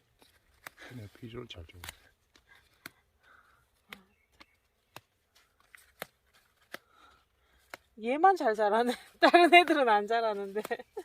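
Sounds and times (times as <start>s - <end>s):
herb stems snapping: 1.7s - 7.9s.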